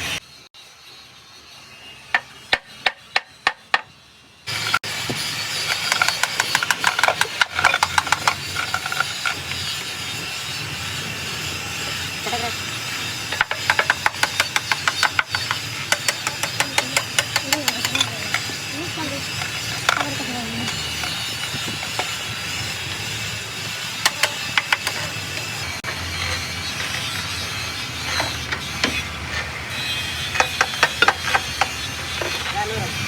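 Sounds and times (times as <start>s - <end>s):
fast mechanical ticking: 4.5s - 9.9s, 13.1s - 25.9s.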